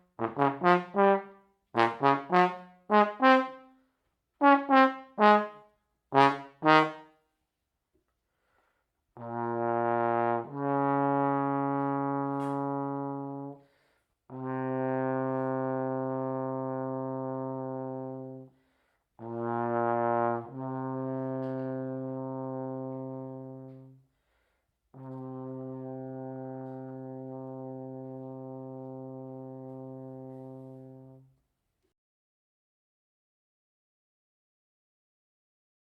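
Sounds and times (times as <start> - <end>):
trombone playing low notes: 0.2 - 3.6, 4.4 - 7.0, 9.2 - 13.6, 14.3 - 18.5, 19.2 - 24.0, 24.9 - 31.3.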